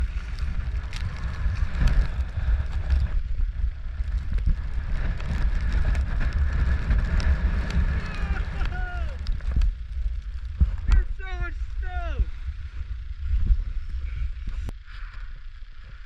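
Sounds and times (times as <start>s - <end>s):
wind buffeting microphone: 0.0s - 14.8s.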